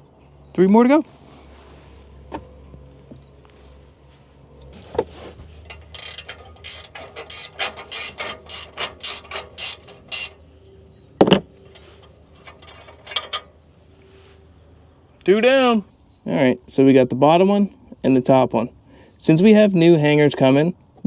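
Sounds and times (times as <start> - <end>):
hand ratchet clicking: 5.6 - 10.4, 11.8 - 13.5
loud metal clank: 5.6 - 10.4, 11.2 - 13.6.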